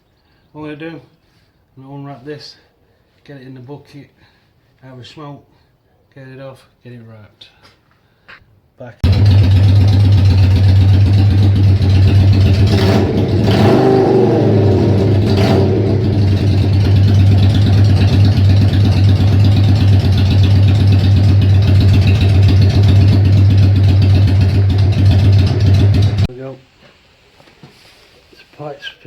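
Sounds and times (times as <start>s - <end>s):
motorcycle engine idling loudly: 9.0s - 26.3s.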